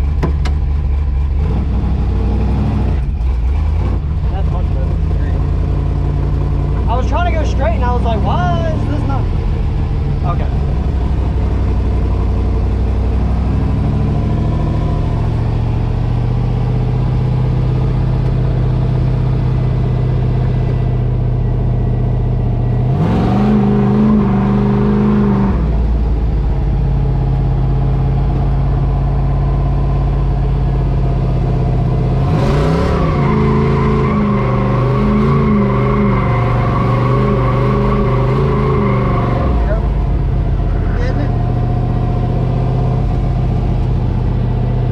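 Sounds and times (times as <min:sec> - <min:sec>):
truck engine revving: 0:00.0 - 0:44.9.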